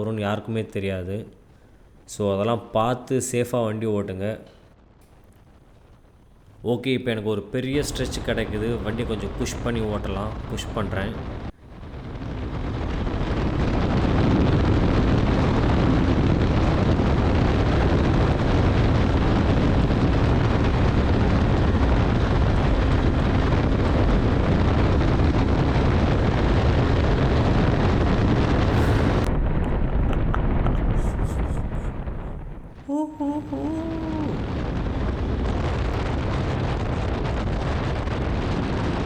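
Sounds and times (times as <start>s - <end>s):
heavy wind rush over microphone: 7.6s - 39.0s.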